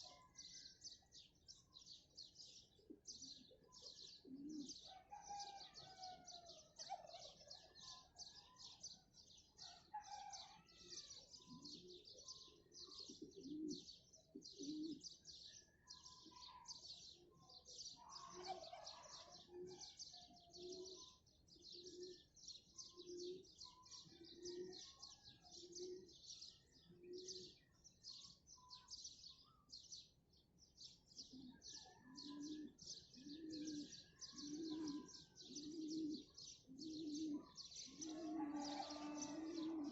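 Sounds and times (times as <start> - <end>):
small birds chirping: 0.0 - 39.9
dove cooing: 2.8 - 8.8, 9.9 - 15.2, 17.4 - 26.3, 26.9 - 27.6, 31.3 - 39.9.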